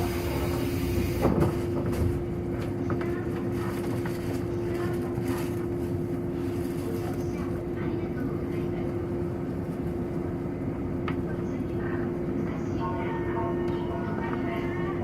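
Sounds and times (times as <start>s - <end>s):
train wheels rumbling on rails: 0.0s - 10.4s
steady train hum: 0.0s - 15.0s.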